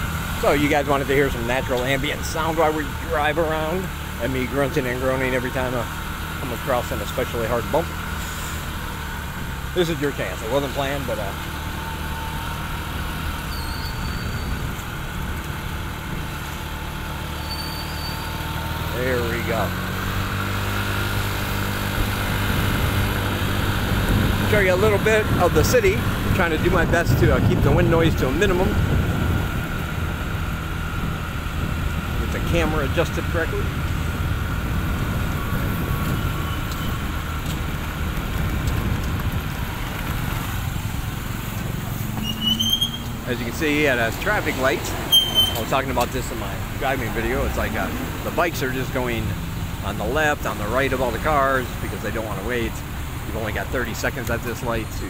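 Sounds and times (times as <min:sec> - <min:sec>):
motorbike engine running: 0:00.0 - 0:54.8
street traffic: 0:00.0 - 0:55.0
wind and road noise: 0:00.0 - 0:55.0
wind rumble on microphone: 0:13.6 - 0:16.7, 0:21.8 - 0:42.0.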